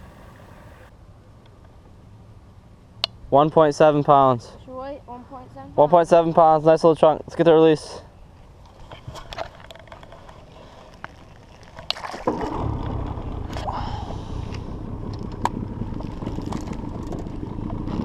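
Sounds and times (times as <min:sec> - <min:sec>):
water noise: 0:00.0 - 0:00.9, 0:10.2 - 0:18.0
boat motor running: 0:12.3 - 0:18.0.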